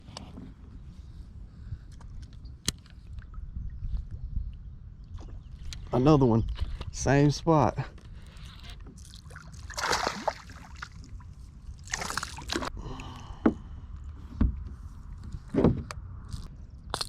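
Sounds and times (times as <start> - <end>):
water splashing beside a kayak: 8.9 - 13.1.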